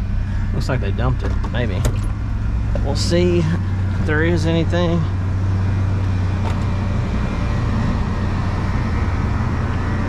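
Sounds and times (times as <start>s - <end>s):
truck engine droning: 0.0s - 10.0s.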